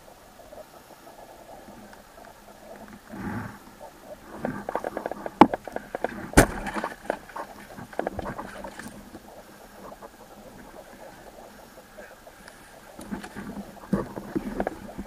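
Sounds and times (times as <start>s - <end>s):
faint steady hiss: 0.0s - 15.0s
sharp crack: 4.3s - 9.0s
sharp clicks and knocks: 4.4s - 9.2s.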